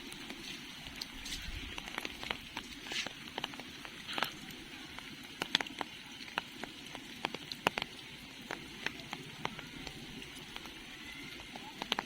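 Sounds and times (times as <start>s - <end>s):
faint rain hiss: 0.0s - 12.0s
raindrops tapping on umbrella: 11.4s - 12.0s.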